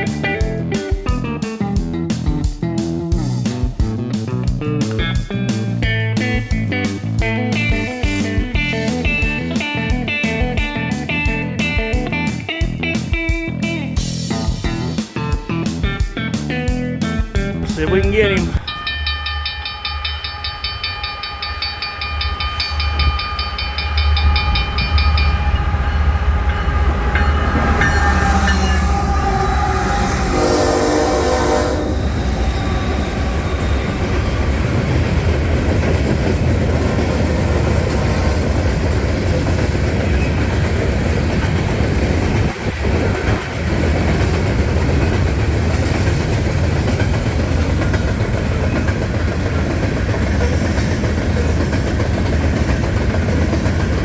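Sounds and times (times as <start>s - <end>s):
train rumbling: 17.7s - 54.0s
locomotive horn blast: 25.9s - 34.6s.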